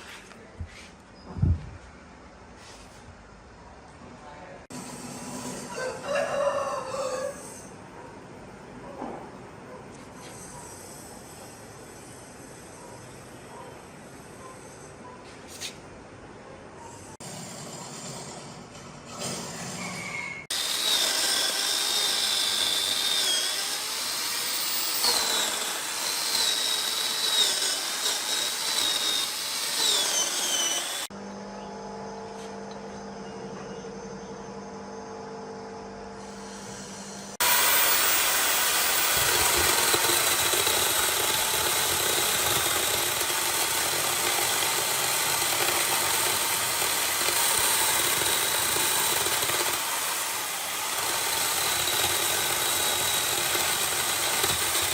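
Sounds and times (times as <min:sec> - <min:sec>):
chainsaw cutting wood: 0:20.5 - 0:31.1, 0:37.3 - 0:54.9.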